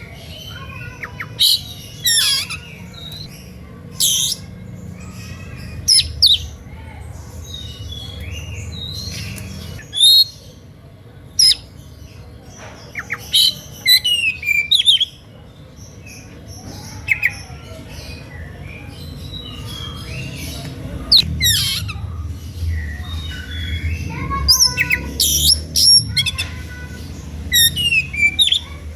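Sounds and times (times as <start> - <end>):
bird whistles and chirps: 27.5 - 28.8.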